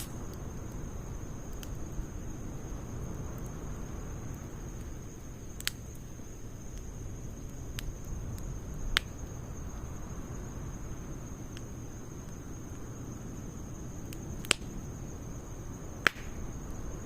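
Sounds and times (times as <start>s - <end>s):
fire crackling pops: 0.0s - 17.0s
wood fire rumbling: 0.0s - 17.0s.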